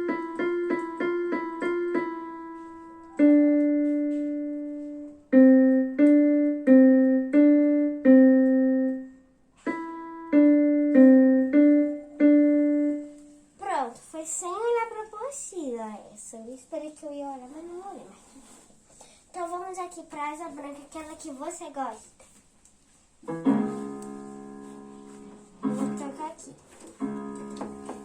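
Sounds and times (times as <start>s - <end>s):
piano melody on keyboard: 0.0s - 13.4s, 23.2s - 28.0s.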